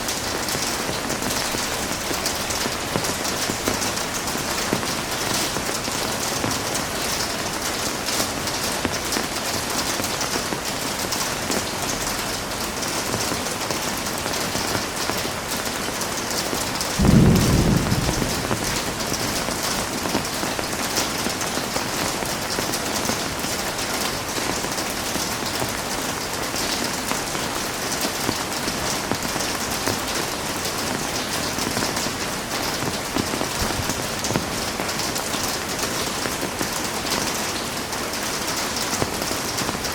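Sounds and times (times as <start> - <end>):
heavy rain hissing: 16.8 - 21.8
low thunder clap: 17.0 - 20.2.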